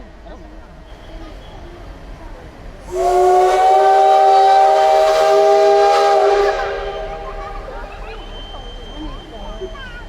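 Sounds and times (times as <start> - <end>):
steam whistle blast: 2.9 - 9.7.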